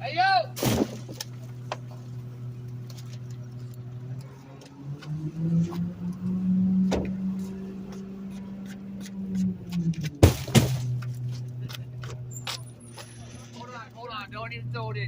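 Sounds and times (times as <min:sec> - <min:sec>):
hydraulic packer running: 0:00.0 - 0:04.8, 0:09.6 - 0:13.7
diesel truck engine: 0:00.0 - 0:15.0.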